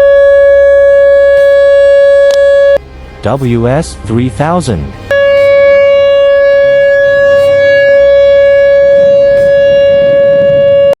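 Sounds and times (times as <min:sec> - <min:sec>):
warning siren steady tone: 0:00.0 - 0:02.8, 0:05.1 - 0:11.0.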